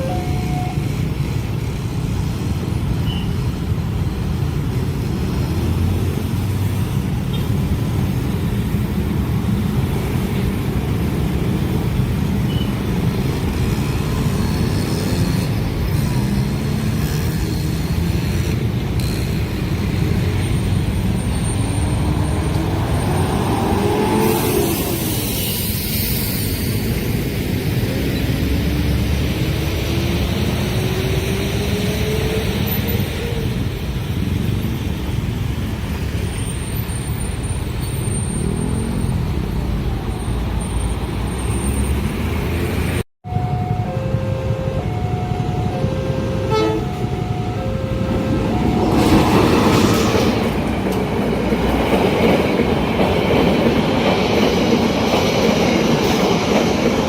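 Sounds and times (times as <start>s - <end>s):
heavy rumble of vehicles: 0.0s - 57.0s
engines rising in pitch: 21.4s - 25.3s, 43.3s - 50.6s.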